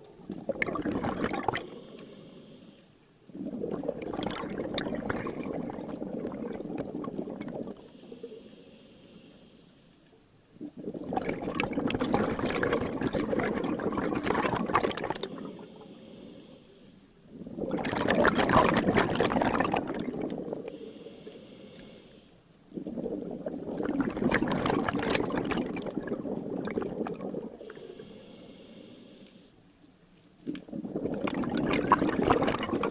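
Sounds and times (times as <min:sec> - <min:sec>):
gurgling bubble bursts underwater: 0:00.0 - 0:01.8, 0:03.3 - 0:07.8, 0:10.5 - 0:15.5, 0:17.3 - 0:20.7, 0:22.7 - 0:27.7, 0:30.4 - 0:32.9
hiss of inhaled air: 0:01.6 - 0:03.0, 0:07.7 - 0:10.1, 0:15.2 - 0:17.1, 0:20.6 - 0:22.4, 0:27.6 - 0:29.6.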